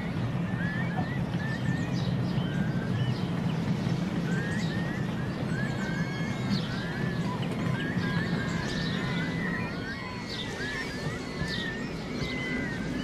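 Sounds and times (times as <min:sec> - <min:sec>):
small birds chirping and twittering: 0:00.0 - 0:13.0.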